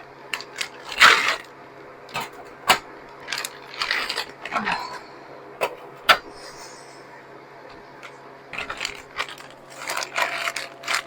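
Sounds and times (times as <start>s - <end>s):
scraping and clattering: 8.6s - 11.0s.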